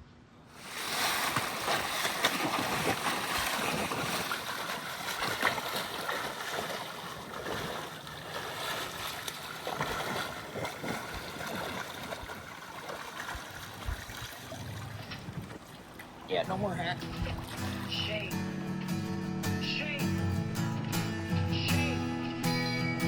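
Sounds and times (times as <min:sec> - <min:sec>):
water sloshing and splashing: 0:00.5 - 0:18.3.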